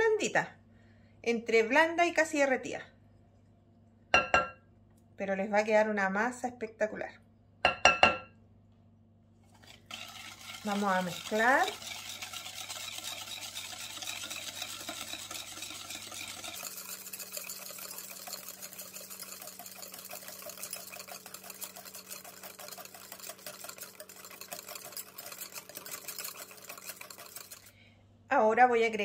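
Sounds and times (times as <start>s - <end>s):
whisk clicking against glass bowl: 9.9s - 27.7s.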